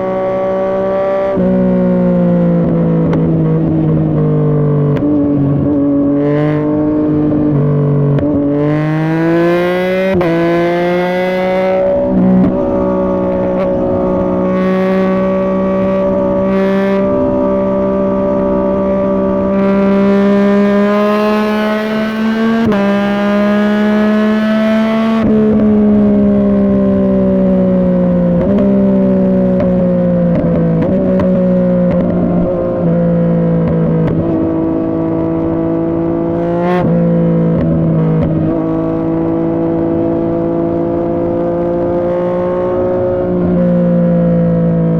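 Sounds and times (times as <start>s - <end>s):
motorcycle engine at speed: 0.0s - 44.9s.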